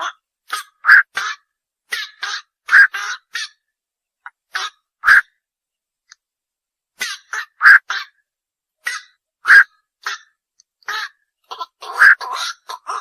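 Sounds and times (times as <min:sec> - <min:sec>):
heron squawking: 0:00.6 - 0:03.6, 0:04.5 - 0:05.4, 0:07.0 - 0:08.2, 0:08.8 - 0:10.2, 0:10.9 - 0:13.0.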